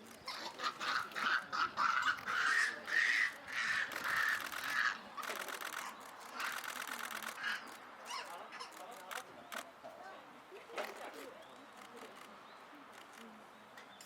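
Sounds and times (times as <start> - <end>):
harsh animal calls: 0.1 - 9.6.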